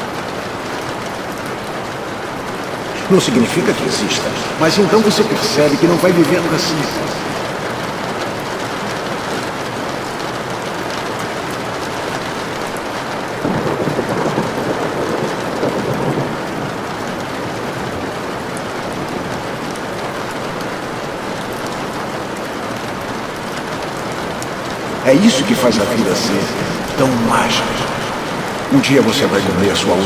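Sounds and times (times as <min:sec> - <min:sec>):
heavy rain: 0:00.0 - 0:30.0
thunder rumbling: 0:25.2 - 0:30.0.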